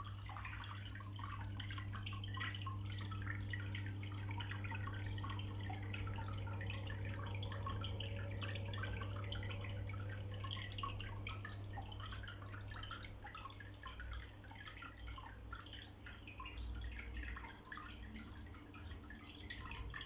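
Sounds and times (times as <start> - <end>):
fountain water trickling and splashing: 0.0 - 20.0
steady low hum: 0.0 - 20.0.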